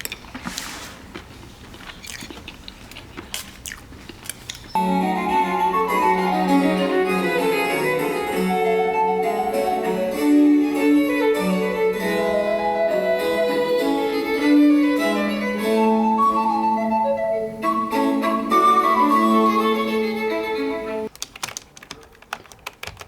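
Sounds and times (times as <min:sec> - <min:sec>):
instrumental music: 0:04.8 - 0:21.1.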